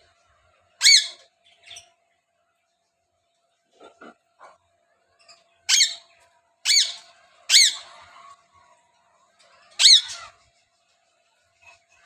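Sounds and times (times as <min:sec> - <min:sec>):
parakeet squawks: 0:00.8 - 0:01.8, 0:05.7 - 0:08.0, 0:09.8 - 0:10.4.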